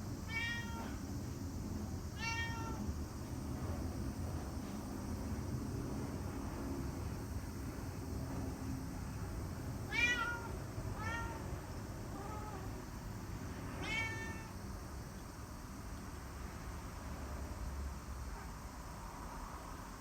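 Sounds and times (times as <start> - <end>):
low steady background hum: 0.0 - 20.0
cat meowing: 0.3 - 1.0, 2.2 - 2.9, 9.9 - 11.5, 12.1 - 12.7, 13.8 - 14.6.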